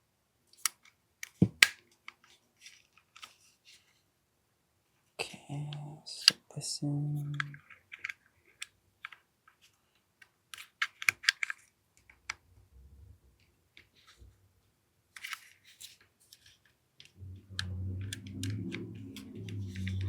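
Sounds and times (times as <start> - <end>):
low steady hum: 17.1 - 20.0.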